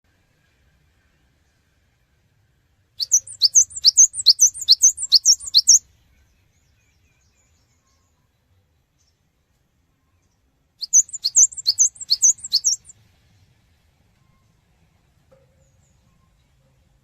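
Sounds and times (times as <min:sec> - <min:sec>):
tit chirping high notes: 0:03.0 - 0:05.8, 0:10.8 - 0:12.9.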